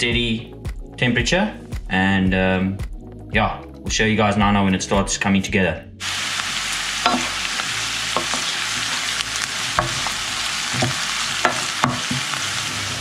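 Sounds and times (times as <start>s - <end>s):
onion sizzling in oil: 6.0s - 13.0s.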